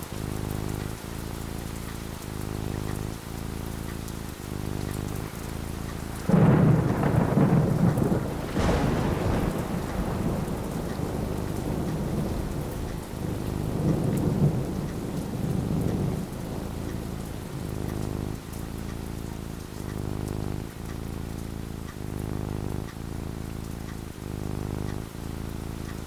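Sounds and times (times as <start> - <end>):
steady rain: 0.0 - 26.0
thunder rumbling: 4.3 - 21.0, 21.8 - 25.2
thunder crack: 6.1 - 18.5.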